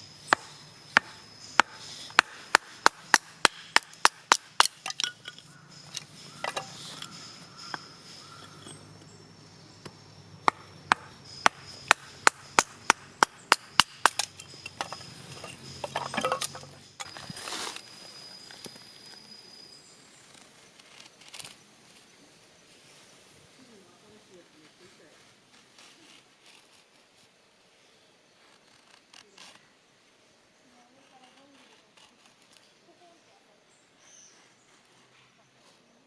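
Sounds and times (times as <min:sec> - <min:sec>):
firewood being chopped: 0:00.3 - 0:05.4, 0:06.4 - 0:08.6, 0:09.8 - 0:17.2.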